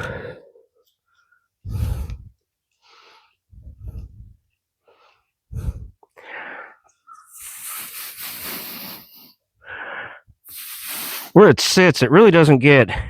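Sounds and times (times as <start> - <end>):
hiss: 7.4 - 9.3, 10.5 - 11.4.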